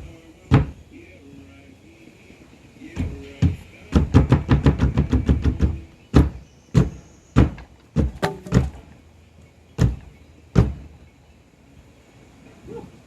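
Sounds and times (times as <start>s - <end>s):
sharp knocks and thuds on floor: 3.0s - 8.9s, 9.8s - 10.8s.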